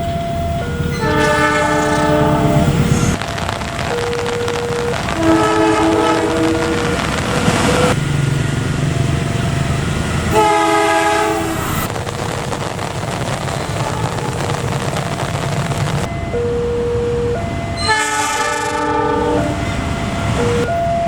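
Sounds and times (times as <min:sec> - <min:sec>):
train rumbling: 0:00.0 - 0:21.0
train horn blasts: 0:00.9 - 0:03.2, 0:05.0 - 0:08.0, 0:10.3 - 0:11.9, 0:17.8 - 0:19.8.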